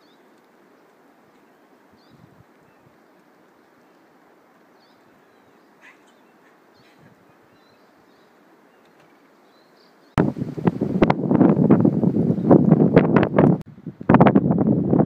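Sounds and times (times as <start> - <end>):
soft steady hiss: 0.0 - 15.0
high bird chirps: 4.7 - 10.2.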